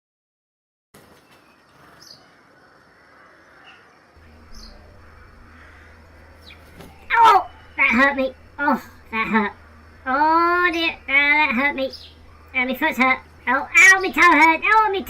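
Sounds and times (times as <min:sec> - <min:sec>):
high bird chirps: 0:03.6 - 0:15.0
low steady rumble: 0:04.2 - 0:15.0.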